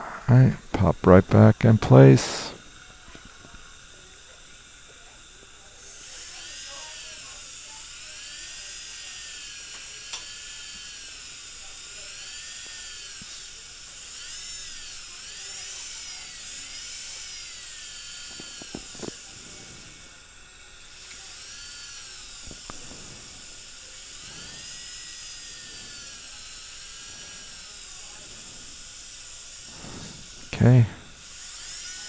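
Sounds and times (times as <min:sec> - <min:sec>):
dental drill whining: 0:00.0 - 0:32.0.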